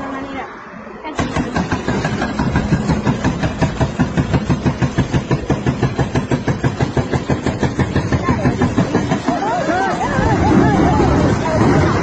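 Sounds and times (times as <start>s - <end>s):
excavator engine running: 1.1s - 12.0s
hydraulic breaker hammering stone: 1.2s - 10.2s.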